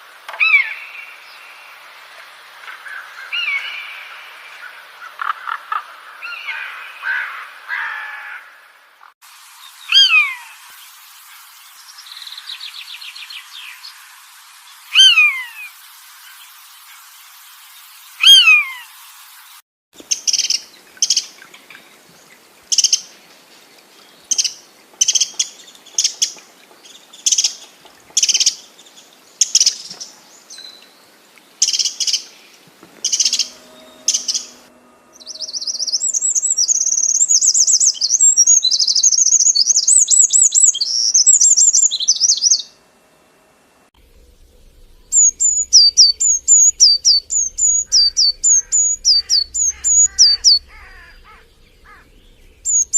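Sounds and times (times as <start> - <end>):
falling whistled bird notes: 14.9 - 15.7, 33.0 - 42.6, 45.0 - 52.9
short high bird chirps: 33.0 - 42.6, 45.0 - 52.9
fast chattering birdsong: 35.2 - 42.6, 44.2 - 52.9.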